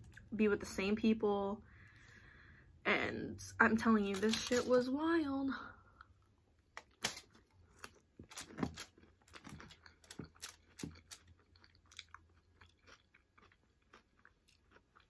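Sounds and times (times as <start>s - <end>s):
tortilla chips crunching while chewing: 6.8s - 15.0s.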